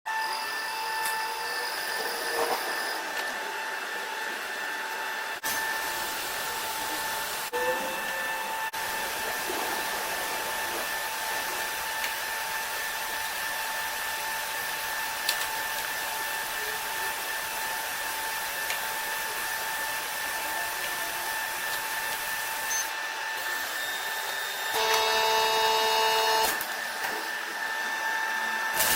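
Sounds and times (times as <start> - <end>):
welding machine hiss and whine: 0.1 - 4.2, 5.1 - 28.9
multi-tone buzz: 24.7 - 26.6.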